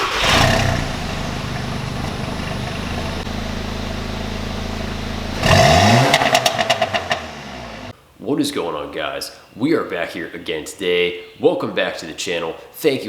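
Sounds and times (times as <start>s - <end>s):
exhaust pops and crackles: 0.0s - 7.2s
car engine revving and idling: 0.0s - 7.9s.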